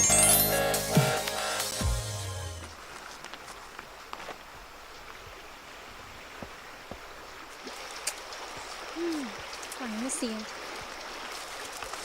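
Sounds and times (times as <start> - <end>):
river water running: 2.6 - 12.0
faint ticks and clicks: 7.7 - 12.0.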